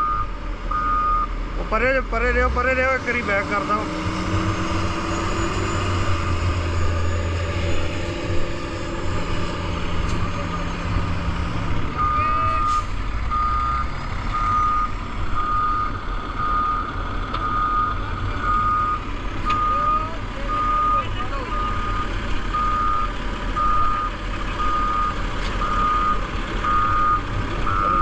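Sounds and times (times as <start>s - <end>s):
reversing alarm beeping: 0.0s - 1.3s, 12.0s - 28.0s
truck engine running: 0.0s - 28.0s.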